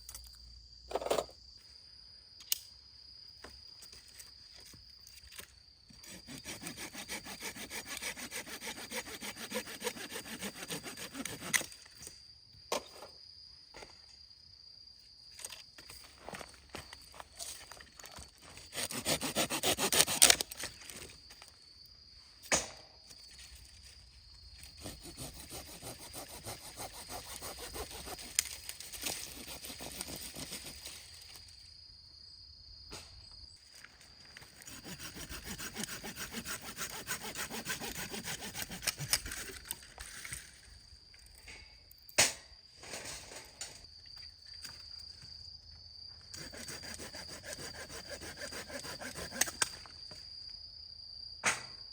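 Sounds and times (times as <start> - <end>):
hand saw cutting wood: 6.0 - 11.7, 18.7 - 20.5, 24.8 - 30.8, 34.5 - 39.8, 46.4 - 49.7.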